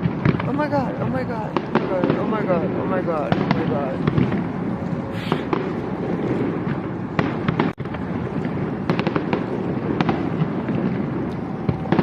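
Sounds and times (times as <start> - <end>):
fireworks rumbling and crackling: 0.0 - 12.0.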